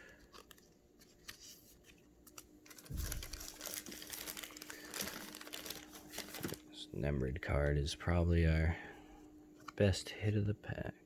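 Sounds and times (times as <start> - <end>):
plastic card sleeve crinkling: 0.0 - 6.7.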